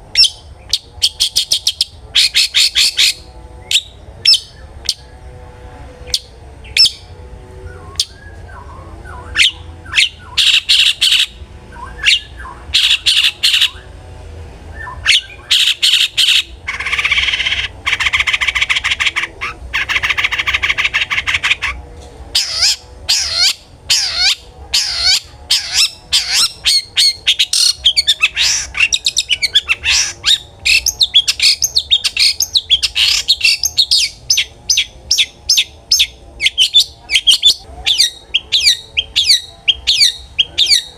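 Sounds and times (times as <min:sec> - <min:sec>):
bird harsh rasping chatter: 0:00.1 - 0:05.3, 0:09.3 - 0:11.4, 0:12.0 - 0:13.9, 0:15.0 - 0:40.9
shrike calls: 0:14.8 - 0:40.9.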